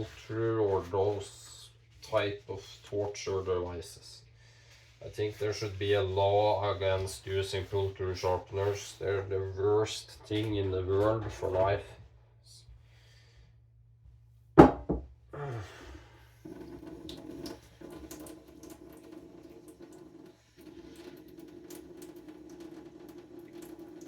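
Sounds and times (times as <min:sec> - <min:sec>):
sharp knock: 0:14.6 - 0:15.0.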